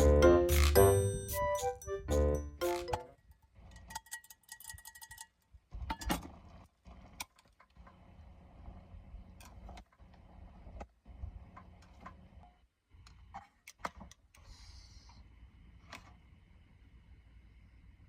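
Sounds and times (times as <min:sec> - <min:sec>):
chime-like melody: 0:00.0 - 0:03.2.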